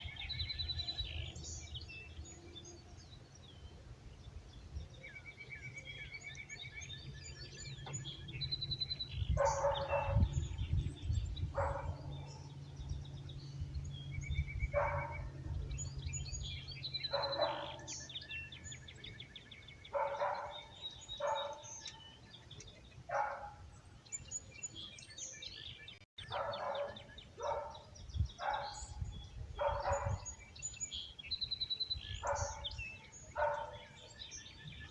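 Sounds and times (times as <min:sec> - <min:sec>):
songbirds chirping and trilling: 0:00.0 - 0:34.9
dog barking: 0:09.3 - 0:10.4, 0:11.5 - 0:12.5, 0:14.7 - 0:15.3, 0:17.1 - 0:18.0, 0:19.9 - 0:21.7, 0:23.1 - 0:23.6, 0:26.2 - 0:29.0, 0:29.6 - 0:30.4, 0:32.2 - 0:34.0.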